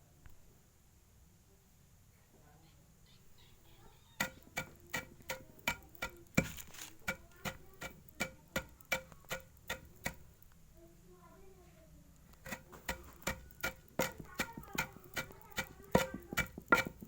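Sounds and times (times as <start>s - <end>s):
pigeon pecking on hard surface: 3.6s - 10.6s, 12.3s - 17.0s.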